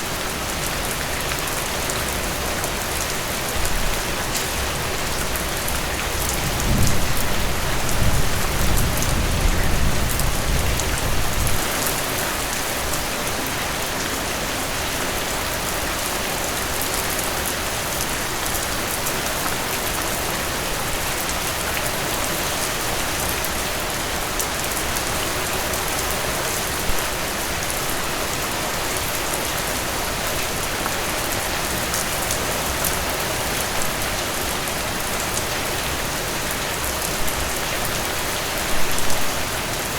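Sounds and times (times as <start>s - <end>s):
heavy rain falling: 0.0s - 39.9s
thunder rumble: 6.4s - 11.8s.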